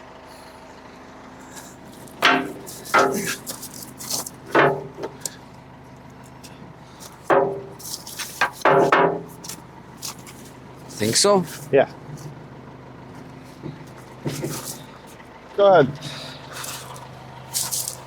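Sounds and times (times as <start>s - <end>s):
metal clanks on steel: 2.2s - 5.4s, 7.1s - 9.6s.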